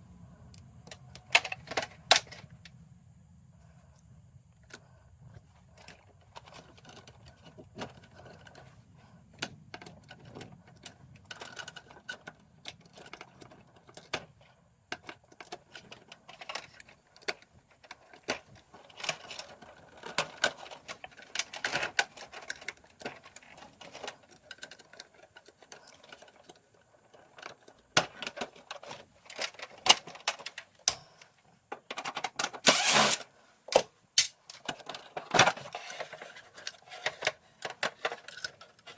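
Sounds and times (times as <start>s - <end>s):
tools clicking and clattering: 27.1s - 38.9s.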